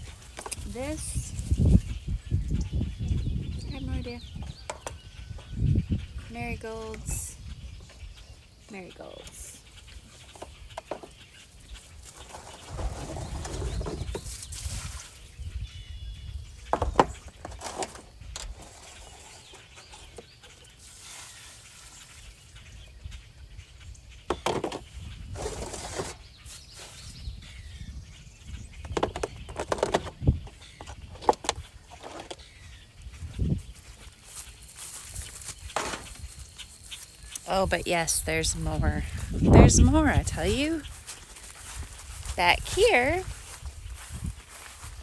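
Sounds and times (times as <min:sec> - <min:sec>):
pots and plants being handled: 0:33.8 - 0:45.0.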